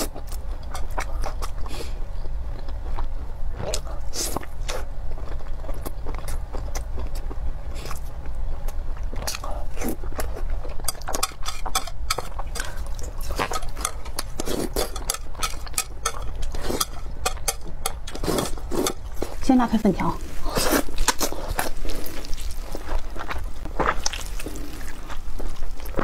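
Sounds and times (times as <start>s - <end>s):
close-miked chewing: 0.0s - 19.5s, 20.2s - 26.0s
steady low hum: 0.0s - 26.0s.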